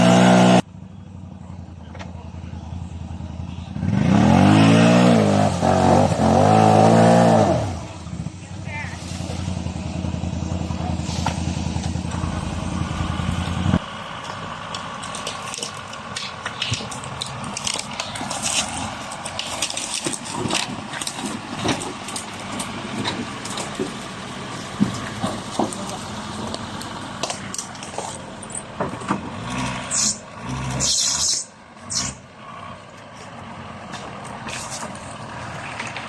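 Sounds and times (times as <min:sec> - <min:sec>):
vehicle engine running: 0:00.0 - 0:36.0
crunching and crackling: 0:14.2 - 0:29.4.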